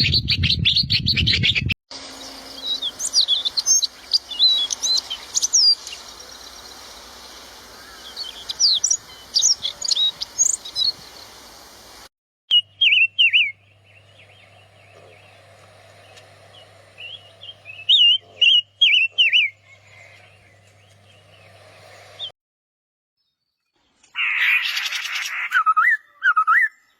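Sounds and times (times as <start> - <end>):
nuthatch calling high notes: 2.0 - 22.3.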